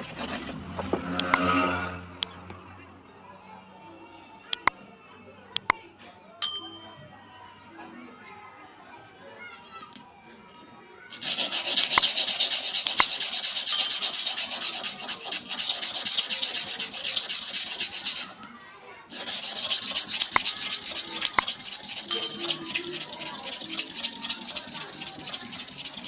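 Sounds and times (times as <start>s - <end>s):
clipper blade rasping on abrasive: 0.0s - 2.5s, 19.1s - 26.0s.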